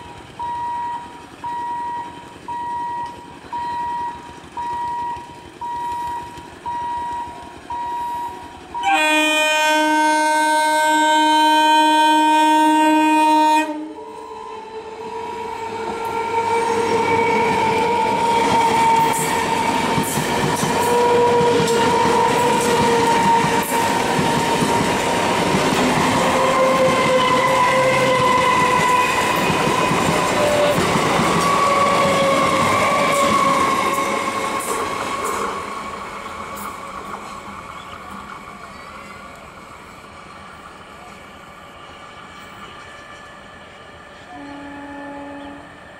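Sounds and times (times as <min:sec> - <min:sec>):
train whine: 0:00.0 - 0:45.9
train horn blast: 0:08.2 - 0:19.6, 0:20.7 - 0:25.0, 0:26.0 - 0:34.2, 0:44.2 - 0:45.8
train wheels clattering over rail joints: 0:16.8 - 0:38.9.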